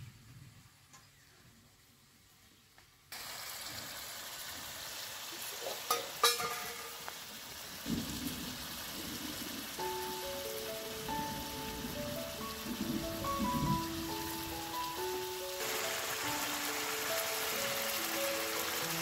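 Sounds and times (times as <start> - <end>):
curry sizzling in a pan: 3.1 - 19.0
steel bowls clinking: 5.9 - 7.1.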